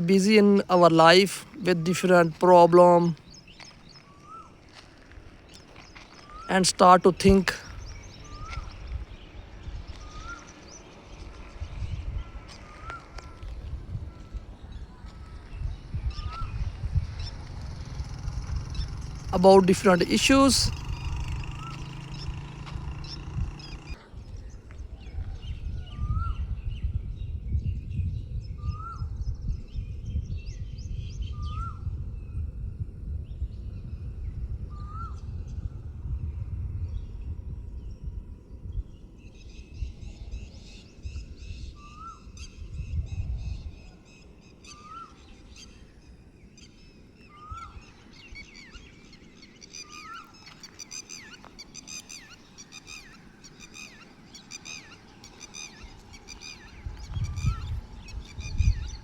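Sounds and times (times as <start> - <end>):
birds chirping: 0.0 - 26.4, 37.0 - 59.0
bird rising call: 16.1 - 24.0, 47.2 - 59.0.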